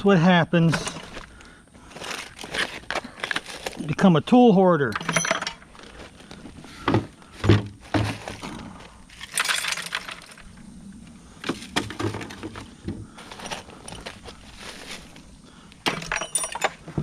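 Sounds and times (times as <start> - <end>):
metal tools clanking into bucket: 0.7 - 1.1, 4.8 - 5.7, 9.1 - 10.4, 15.9 - 17.0.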